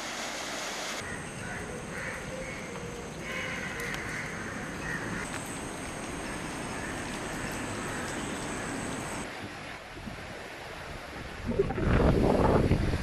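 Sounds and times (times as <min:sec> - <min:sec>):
water rushing: 0:00.0 - 0:01.0, 0:04.4 - 0:13.0.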